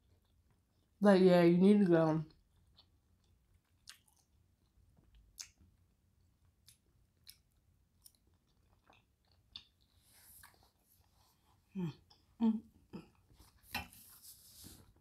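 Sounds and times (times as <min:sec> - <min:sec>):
wet chewing clicks and smacks: 0:02.3 - 0:10.6.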